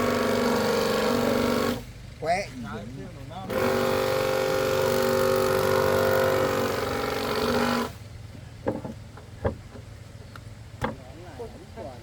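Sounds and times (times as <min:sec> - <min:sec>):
handheld power tool running: 0:00.0 - 0:01.9, 0:03.5 - 0:08.0
sharp knocks: 0:10.8 - 0:11.0.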